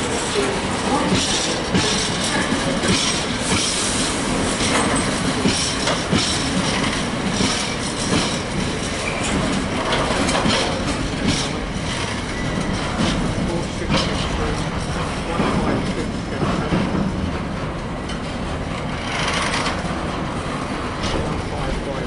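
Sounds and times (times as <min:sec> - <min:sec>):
freight train rumbling past: 0:00.0 - 0:22.0
wheels clattering on rails: 0:00.0 - 0:22.0.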